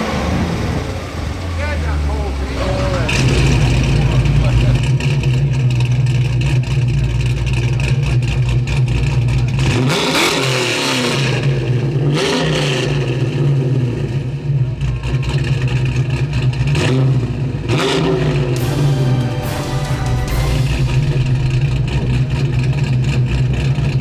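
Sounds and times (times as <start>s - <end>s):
car engine idling and revving: 0.0s - 18.6s.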